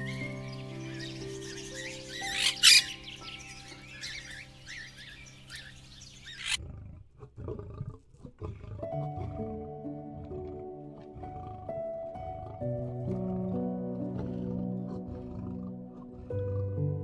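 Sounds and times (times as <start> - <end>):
bird squawks and chirps: 0.0 - 6.6
gentle background music: 0.0 - 6.6, 8.7 - 17.0
lion growling: 6.3 - 17.0.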